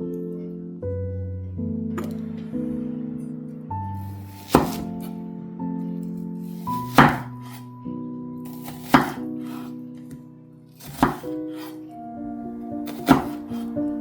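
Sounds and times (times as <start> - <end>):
background music with held chords: 0.0 - 14.0
knife striking cutting board: 4.2 - 4.9, 6.5 - 7.6, 8.5 - 9.6, 10.8 - 11.7, 12.9 - 13.6.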